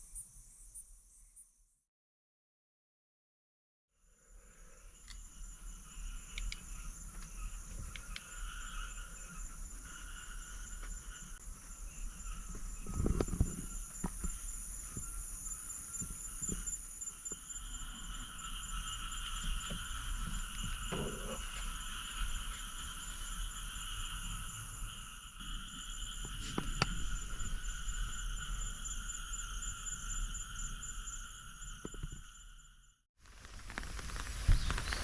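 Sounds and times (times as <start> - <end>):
insects trilling: 4.0 - 35.0.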